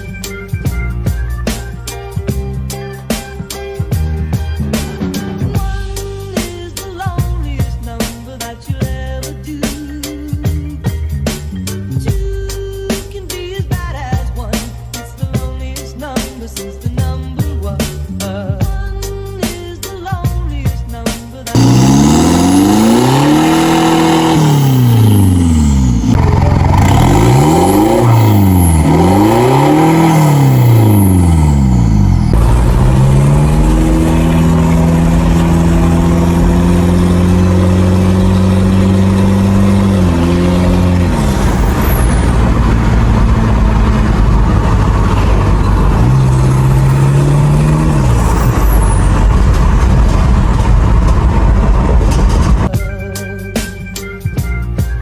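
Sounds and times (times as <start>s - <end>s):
diesel engine revving: 21.5s - 52.7s.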